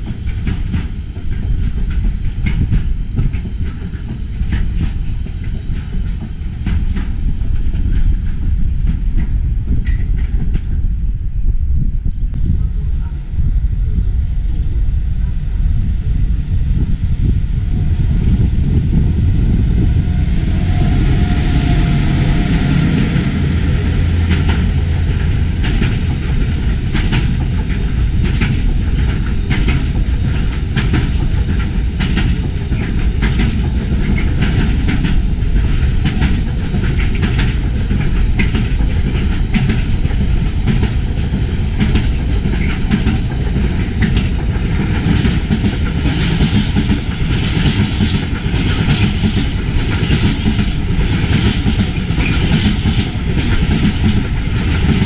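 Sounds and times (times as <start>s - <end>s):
diesel train rumbling: 0.0s - 55.0s
wheels clacking over rail joints: 22.8s - 55.0s.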